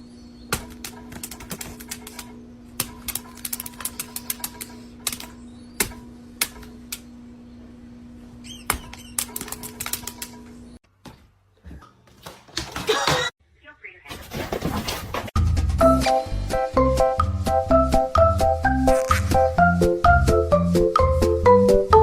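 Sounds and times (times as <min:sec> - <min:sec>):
rapid clicking and tapping: 0:00.6 - 0:05.3.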